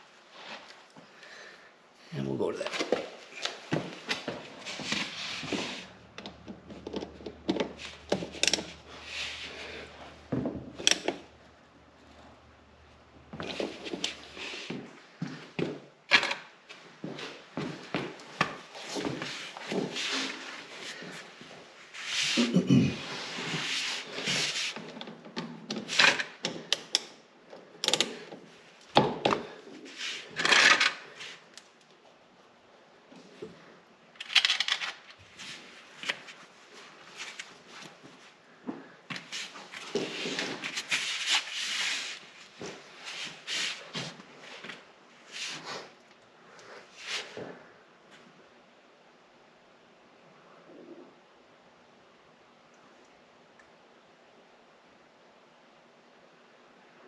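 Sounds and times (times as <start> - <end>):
hand tools clicking and scraping: 2.7 - 9.9, 10.8 - 11.3, 27.8 - 28.4
tools clicking and knocking: 6.2 - 8.8, 10.7 - 11.2, 27.8 - 28.2.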